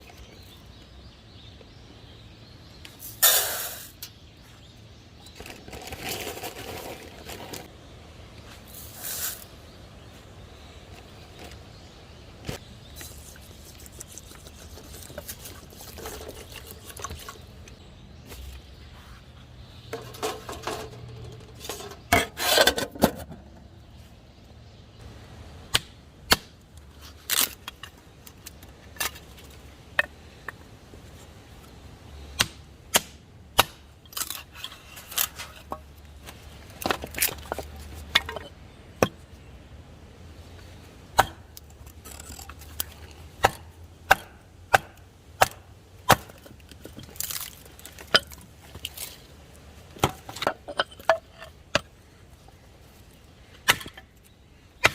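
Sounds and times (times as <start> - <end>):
rustling scrape: 5.3 - 7.7, 12.9 - 17.6, 18.3 - 23.2.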